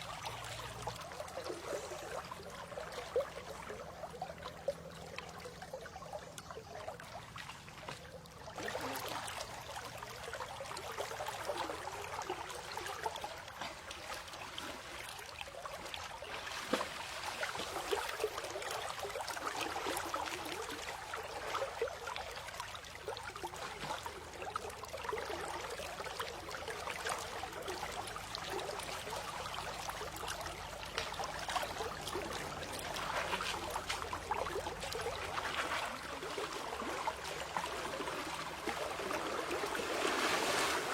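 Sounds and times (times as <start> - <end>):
water trickling and splashing: 0.0 - 40.9.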